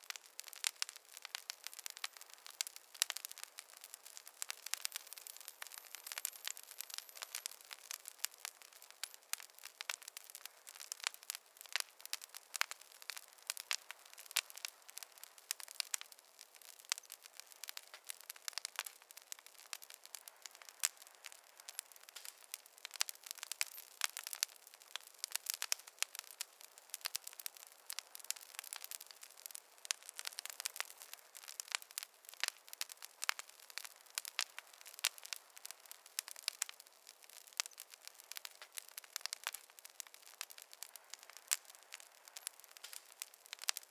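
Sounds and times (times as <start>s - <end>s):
campfire crackling: 0.0s - 43.9s.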